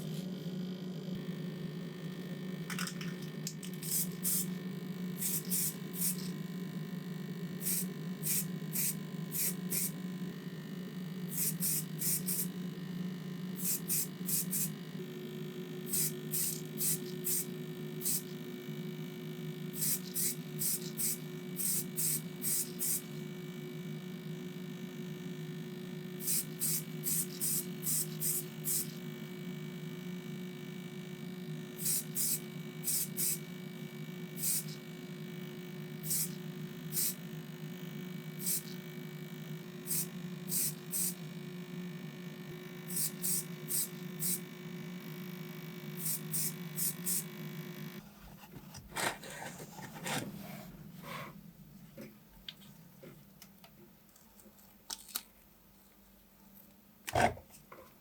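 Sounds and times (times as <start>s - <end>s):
compressor motor hum: 0.0s - 53.6s
hissing spray bursts: 7.6s - 9.9s
handling noises and clicks: 53.4s - 55.4s.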